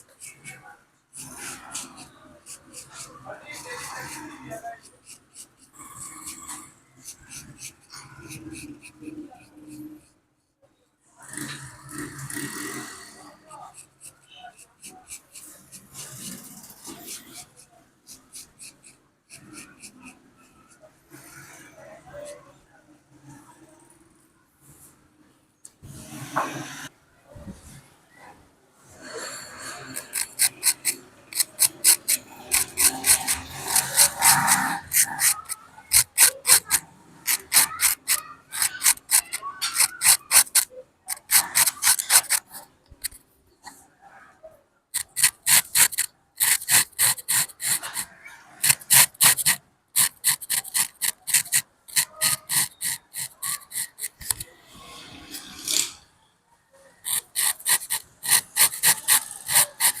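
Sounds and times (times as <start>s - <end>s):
razor scraping hair off scalp: 29.6s - 43.2s, 45.0s - 54.5s, 57.0s - 60.0s.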